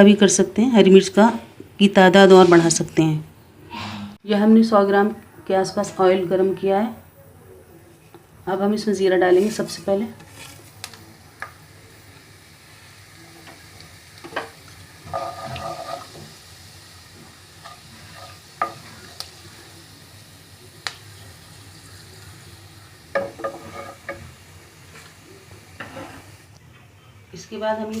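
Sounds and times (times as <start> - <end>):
seeds sizzling in hot oil: 9.3 - 26.6.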